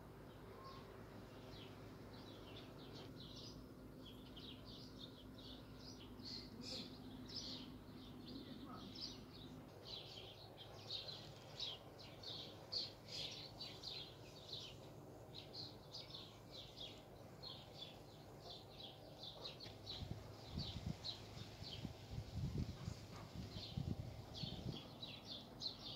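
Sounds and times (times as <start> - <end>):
small birds chirping: 0.0 - 25.9.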